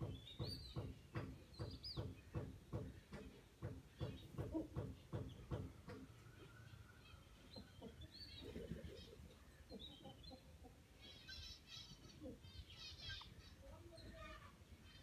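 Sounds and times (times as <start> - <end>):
high bird chirps and twittering: 11.0 - 15.0.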